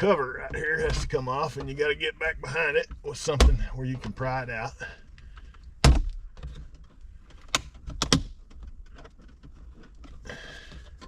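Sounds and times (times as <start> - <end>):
handling rustle: 5.0 - 11.0.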